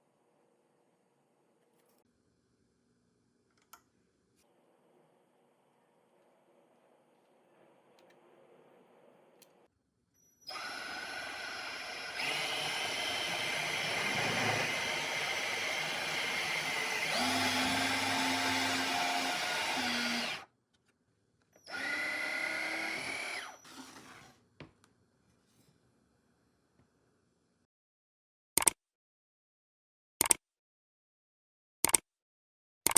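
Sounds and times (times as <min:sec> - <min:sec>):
electric motor whining: 0:10.5 - 0:20.4, 0:21.7 - 0:24.0.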